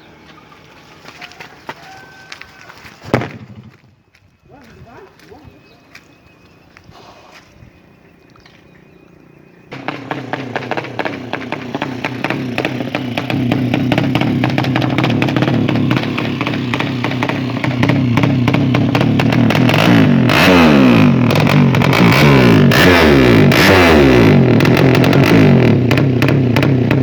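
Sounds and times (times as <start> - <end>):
motorcycle engine revving: 3.1 - 3.9, 9.2 - 27.0.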